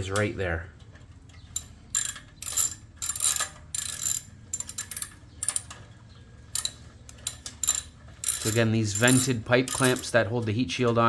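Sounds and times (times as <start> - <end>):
ratchet wrench clicking: 1.6 - 5.8, 6.5 - 10.1.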